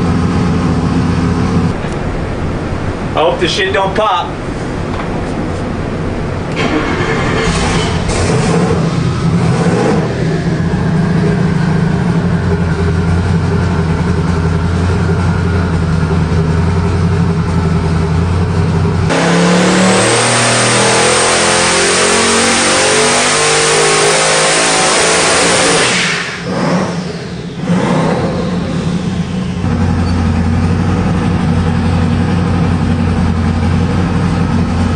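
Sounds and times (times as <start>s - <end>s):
engine revving on dyno: 6.5s - 16.8s, 19.0s - 34.9s.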